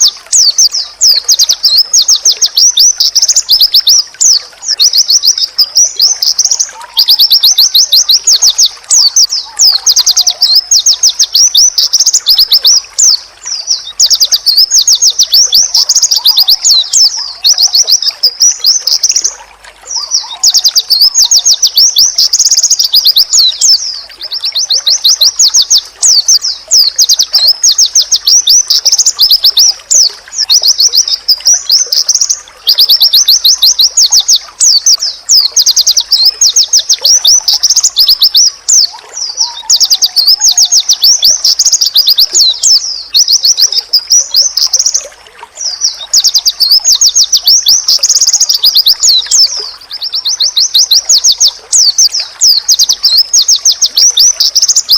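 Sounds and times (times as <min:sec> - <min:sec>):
bird singing fast chattering runs: 0:00.0 - 0:19.3.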